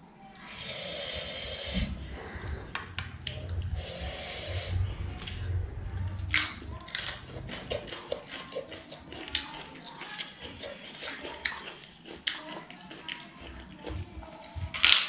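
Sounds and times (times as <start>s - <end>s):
chewing and mouth smacks: 6.3s - 15.0s.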